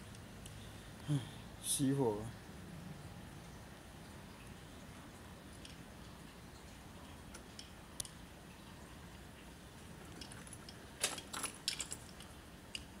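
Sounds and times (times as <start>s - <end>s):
faint background hiss: 0.0s - 13.0s
light clicks and rattles: 10.0s - 13.0s.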